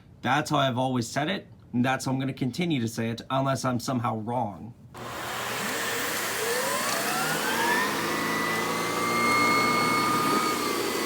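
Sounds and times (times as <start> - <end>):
vacuum cleaner motor whine: 5.0 - 11.0.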